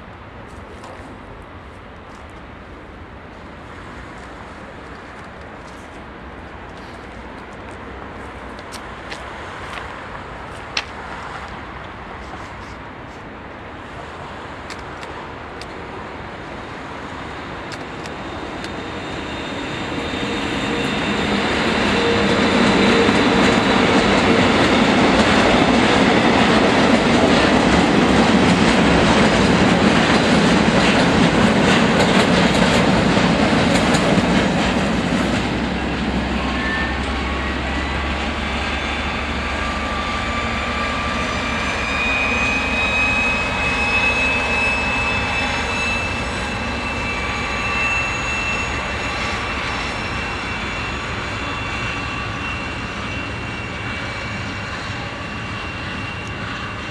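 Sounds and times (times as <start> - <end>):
thin high whine: 17.7 - 24.7, 35.7 - 56.9.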